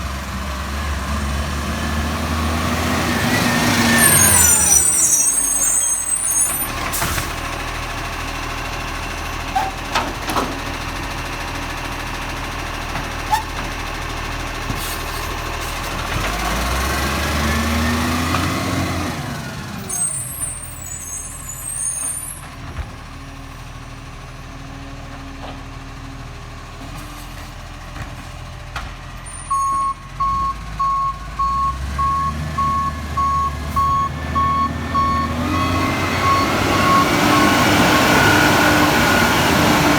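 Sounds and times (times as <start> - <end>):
garbage truck diesel engine: 0.0 - 39.9
reversing alarm beeps: 29.5 - 37.6.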